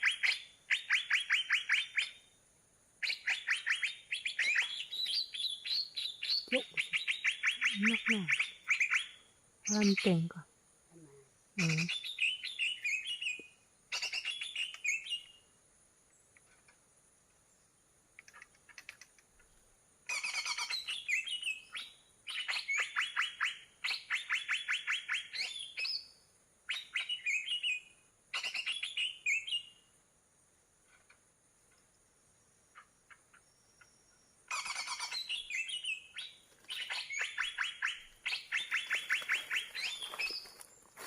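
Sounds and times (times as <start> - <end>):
bird chattering chirps: 3.0 - 10.4, 11.6 - 15.3, 20.1 - 25.9, 32.7 - 40.6.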